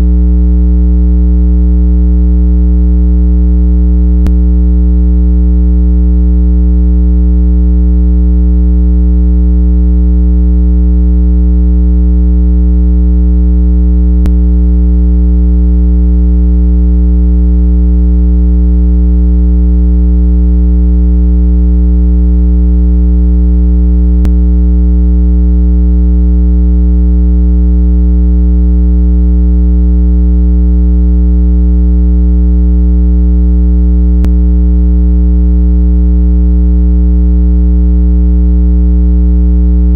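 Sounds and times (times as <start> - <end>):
low buzzy electronic tone: 0.0 - 26.2, 34.1 - 35.2.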